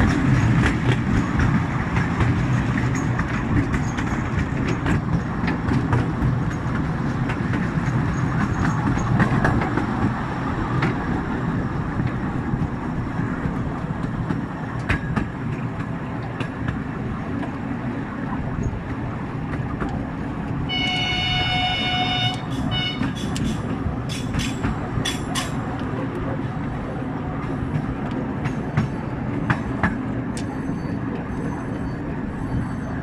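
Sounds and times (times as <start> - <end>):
train rumbling: 0.0 - 33.0
wheels clicking on rails: 0.0 - 33.0
locomotive horn: 20.7 - 23.6.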